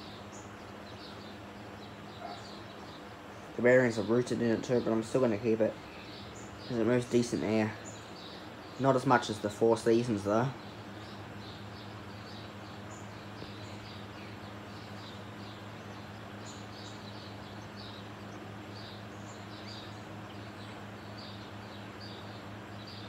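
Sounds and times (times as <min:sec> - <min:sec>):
fan motor hum: 0:00.0 - 0:23.0.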